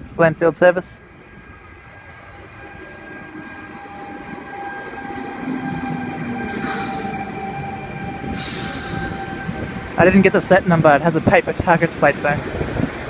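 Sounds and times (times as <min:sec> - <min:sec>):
train rumbling: 0:00.0 - 0:13.0
high-pitched tone: 0:02.1 - 0:09.8
air hiss: 0:06.6 - 0:07.4, 0:08.3 - 0:09.6.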